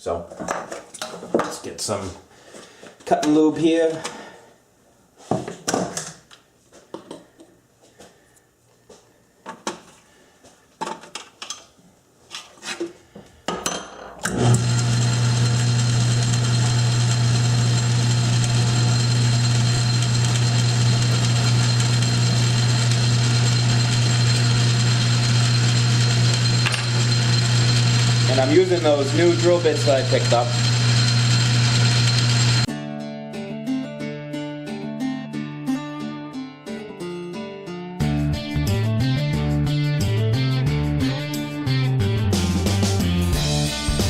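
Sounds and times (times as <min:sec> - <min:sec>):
tools clicking and knocking: 0:10.8 - 0:11.7
metal lathe humming: 0:14.3 - 0:32.7.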